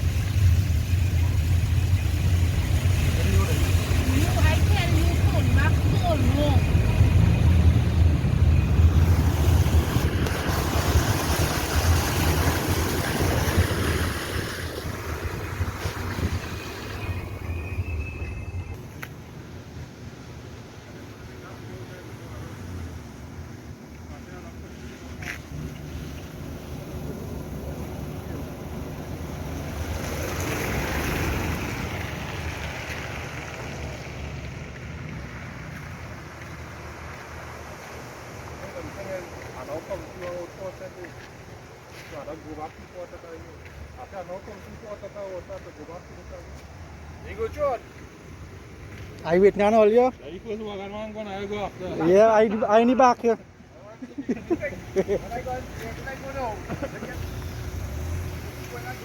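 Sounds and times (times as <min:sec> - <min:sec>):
vehicle engine running: 0:00.0 - 0:14.2, 0:54.6 - 0:59.0
engine rumble: 0:00.0 - 0:59.0
water rushing and splashing: 0:00.0 - 0:59.0.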